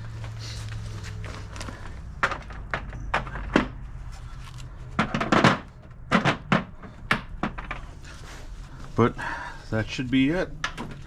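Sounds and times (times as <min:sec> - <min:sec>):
sharp knocks and clunks: 0:02.2 - 0:03.8, 0:04.9 - 0:07.9.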